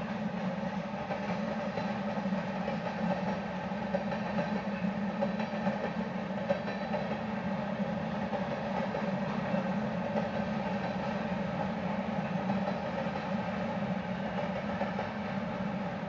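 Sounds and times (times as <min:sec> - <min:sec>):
rail car knocks: 0:00.0 - 0:07.3, 0:08.2 - 0:15.7
freight train wheels rumbling: 0:00.0 - 0:16.0.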